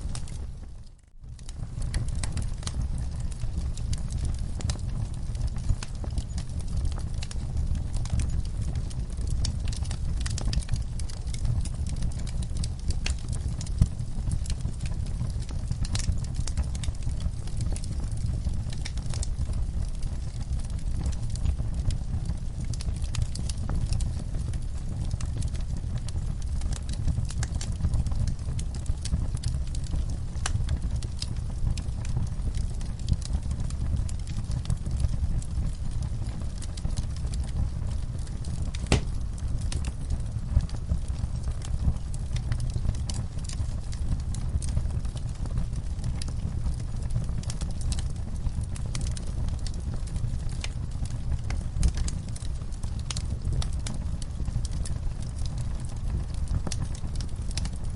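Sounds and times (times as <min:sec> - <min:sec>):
low rumble of fire: 0:00.0 - 0:57.9
wood fire crackling: 0:00.0 - 0:57.9
sharp pops of fire: 0:38.3 - 0:45.1.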